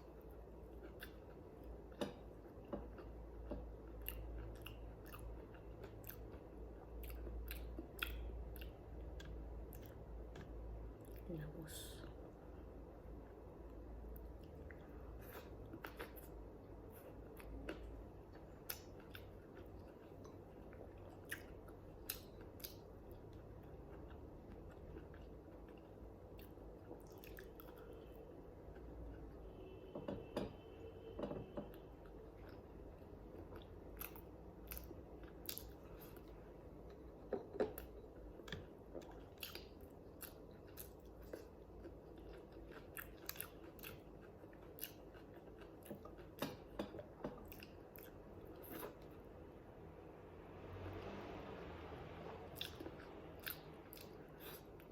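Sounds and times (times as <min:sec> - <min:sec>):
person chewing food: 0:00.0 - 0:11.2, 0:13.2 - 0:29.7, 0:31.1 - 0:49.4, 0:52.2 - 0:54.9
food crunching: 0:32.1 - 0:49.1.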